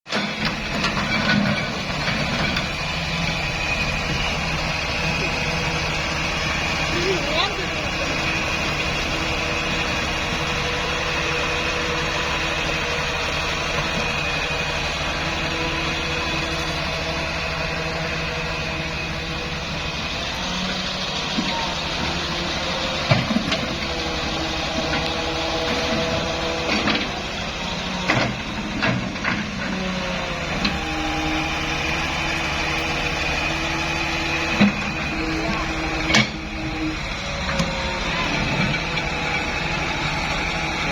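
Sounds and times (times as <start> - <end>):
excavator engine and hydraulics whining: 0.1 - 40.9.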